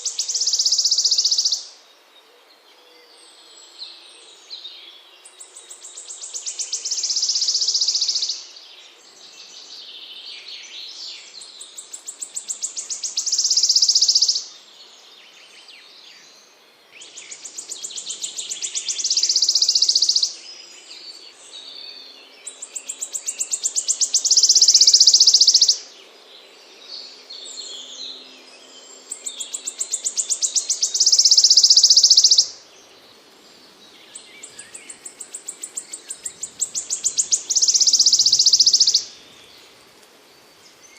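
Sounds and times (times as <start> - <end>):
small songbird trilling: 0.1 - 1.6, 12.0 - 14.5, 17.3 - 20.3, 22.7 - 25.8, 29.1 - 32.6, 34.1 - 39.6.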